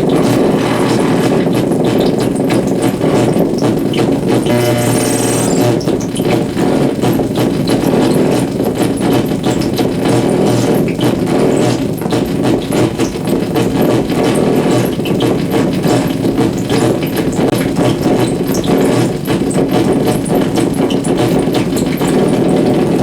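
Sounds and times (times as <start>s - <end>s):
electrical buzz with crackling: 0.0s - 6.8s
steady low hum: 4.4s - 6.0s.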